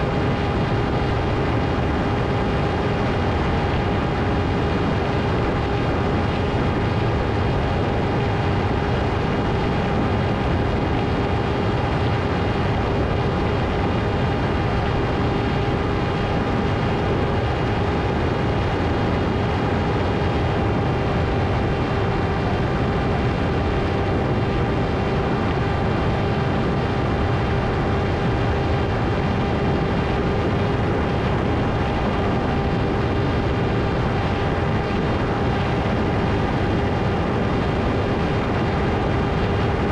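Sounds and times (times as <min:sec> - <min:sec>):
propeller rushing noise: 0:00.0 - 0:39.9.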